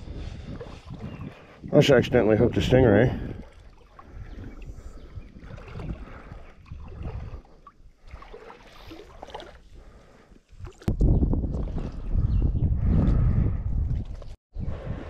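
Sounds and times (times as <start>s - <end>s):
wind buffeting microphone: 0.0s - 8.3s, 10.5s - 15.0s
water sloshing: 2.5s - 10.9s.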